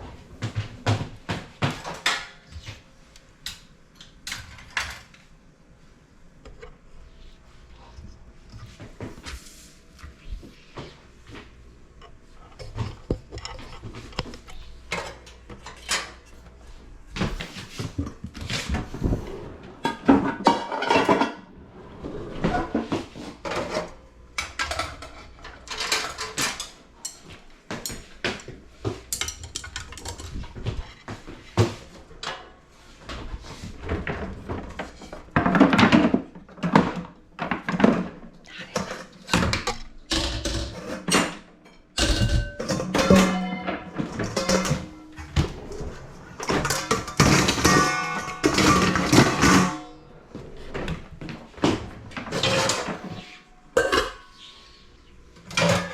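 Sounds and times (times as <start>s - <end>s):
pots and dishes clattering: 12.0s - 16.5s, 17.2s - 21.6s, 22.4s - 54.5s, 55.4s - 55.9s.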